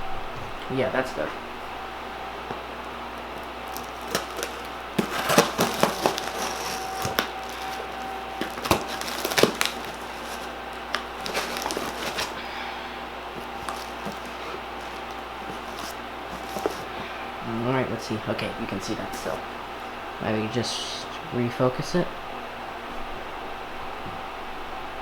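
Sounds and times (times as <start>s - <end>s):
steady low hum: 0.0s - 25.0s
handling clicks and knocks: 3.7s - 12.4s, 13.4s - 16.9s.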